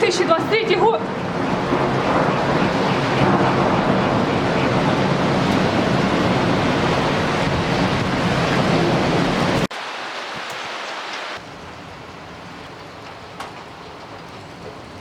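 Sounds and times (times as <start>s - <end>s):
wind buffeting microphone: 0.0s - 9.7s
heavy rain: 0.0s - 15.0s.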